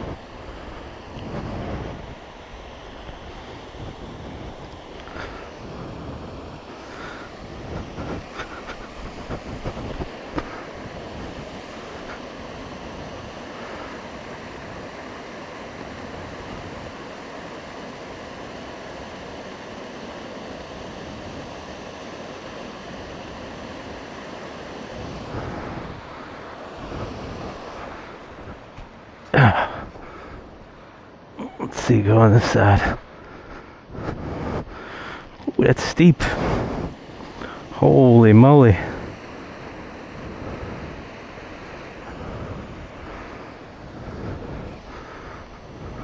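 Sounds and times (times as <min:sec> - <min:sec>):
rushing forest stream: 0:00.0 - 0:46.0.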